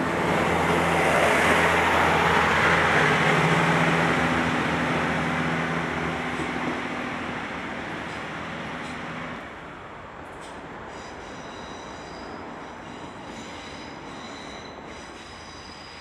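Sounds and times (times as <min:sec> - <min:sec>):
train running noise: 0:00.0 - 0:16.0
high-pitched wheel squeal: 0:10.9 - 0:16.0.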